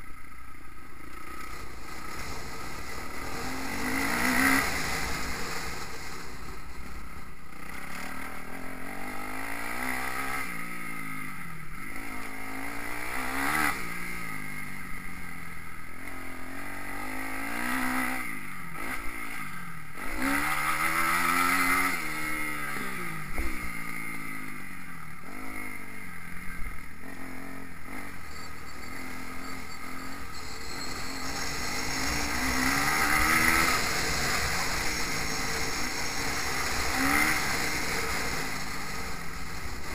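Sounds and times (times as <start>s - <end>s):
motocross bike engine revving: 1.0s - 15.1s, 15.8s - 39.9s.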